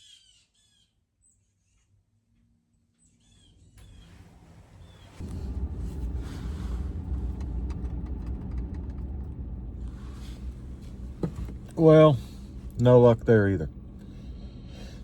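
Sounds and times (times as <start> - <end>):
truck engine rumble: 3.8 - 15.0.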